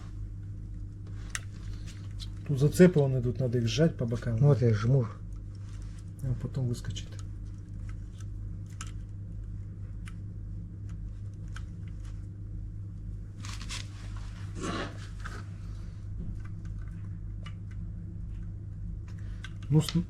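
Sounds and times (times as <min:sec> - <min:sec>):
steady low hum: 0:00.0 - 0:20.0
scraping rustles: 0:13.4 - 0:15.7.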